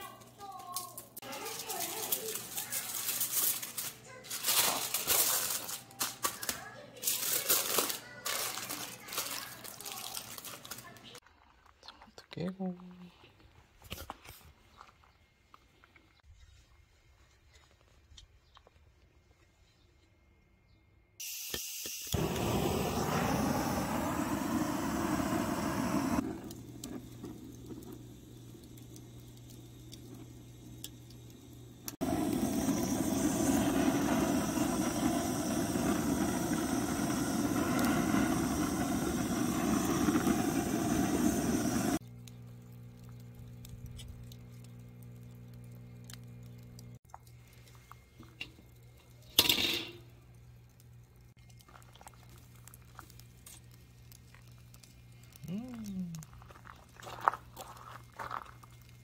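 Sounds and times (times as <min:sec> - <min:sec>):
loud rushing hiss: 0:21.2 - 0:42.0
low steady hum: 0:22.2 - 0:59.0.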